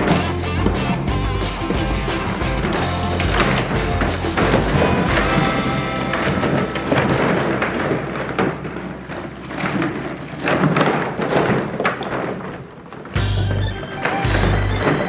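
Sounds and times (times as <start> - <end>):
plastic balls clattering: 2.6 - 13.2.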